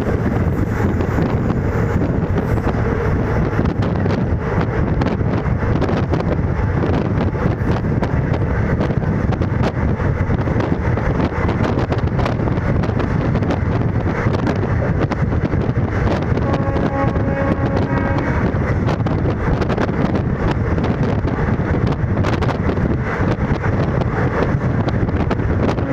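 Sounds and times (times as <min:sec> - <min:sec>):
rushing air: 0:00.0 - 0:25.9
train wheels rumbling on track: 0:00.0 - 0:25.9.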